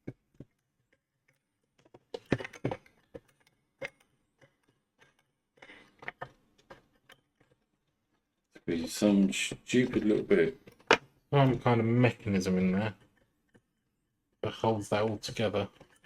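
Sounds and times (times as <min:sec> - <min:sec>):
clicks and knocks on mixer housing: 0:10.6 - 0:11.5.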